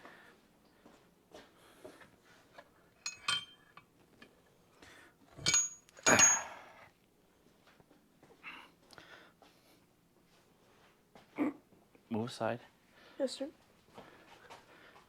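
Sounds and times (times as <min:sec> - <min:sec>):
metal tools clinking: 0:03.0 - 0:03.8, 0:05.4 - 0:06.7
loud metallic clanks: 0:05.4 - 0:06.5.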